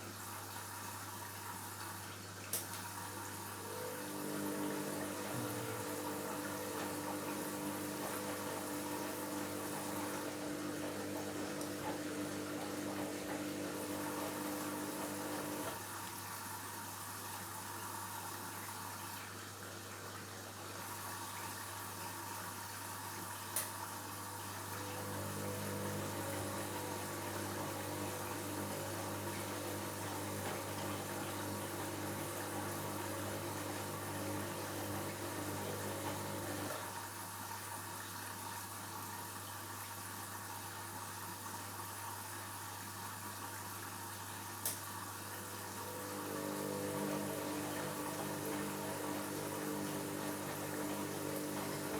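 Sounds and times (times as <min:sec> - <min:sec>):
washing machine running: 0:02.8 - 0:19.3, 0:20.7 - 0:37.7, 0:44.6 - 0:51.9
pitched motor hum: 0:03.6 - 0:15.8, 0:24.8 - 0:36.8, 0:45.4 - 0:51.9.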